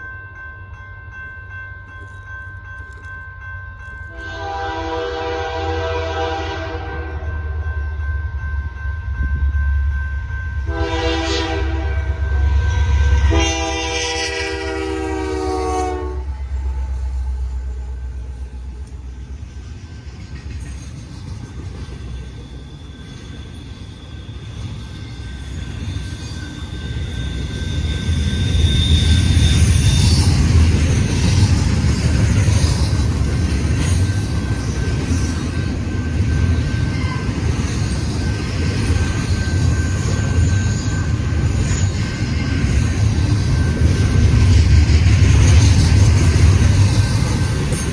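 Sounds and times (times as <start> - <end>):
train rumbling: 0.0 - 47.9
locomotive air horn: 4.1 - 7.3, 10.7 - 16.4.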